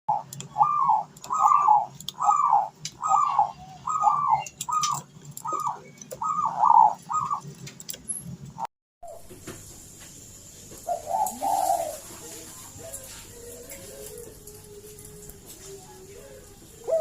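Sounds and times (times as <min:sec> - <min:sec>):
dove cooing: 0:00.1 - 0:07.6, 0:10.8 - 0:17.0.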